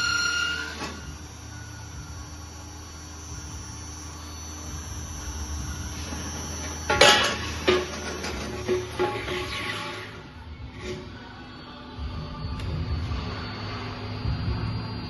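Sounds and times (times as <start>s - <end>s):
bandsaw humming: 0.0s - 11.5s
high-pitched squeal: 0.0s - 15.0s.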